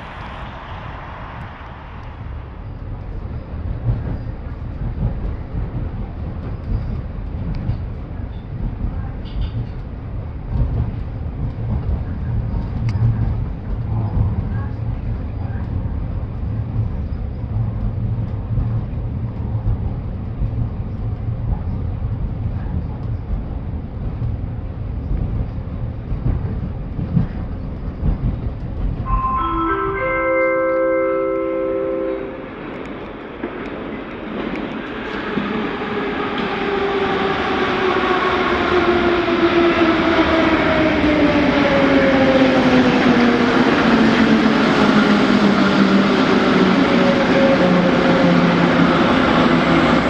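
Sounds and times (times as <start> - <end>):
train wheels rumbling on rails: 0.0 - 29.6, 32.3 - 50.0.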